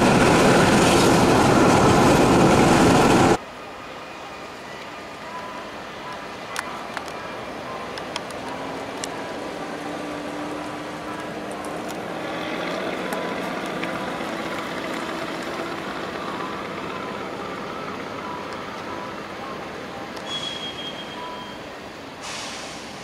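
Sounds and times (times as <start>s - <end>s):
train wheels rumbling on rail: 0.0s - 3.4s, 8.0s - 18.0s
faint drawn-out tone: 16.1s - 22.6s.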